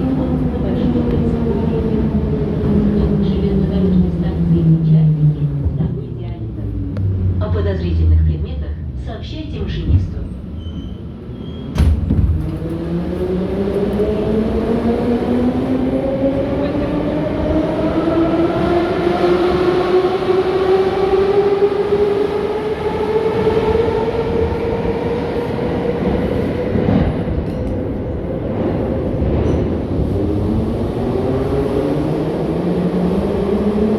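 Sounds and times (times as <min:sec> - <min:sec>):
rumble of train wheels: 0:00.0 - 0:33.9.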